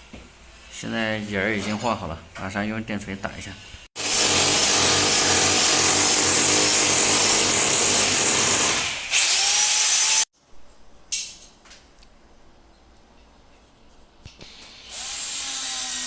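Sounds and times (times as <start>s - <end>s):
rotary hammer drilling into concrete: 4.0s - 10.3s.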